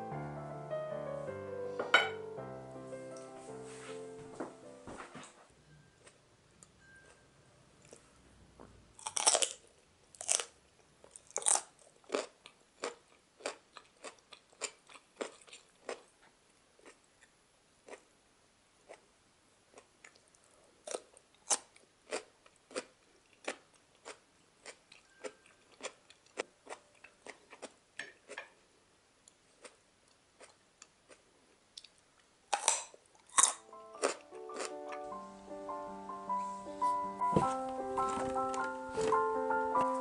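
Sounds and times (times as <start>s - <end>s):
crisp vegetable crunching: 9.0s - 16.2s, 20.8s - 28.5s, 29.3s - 35.0s, 37.4s - 40.0s.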